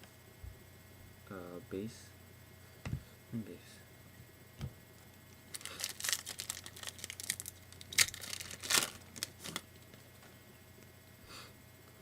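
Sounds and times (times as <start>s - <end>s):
foil wrapper crinkling and tearing: 5.5s - 10.0s.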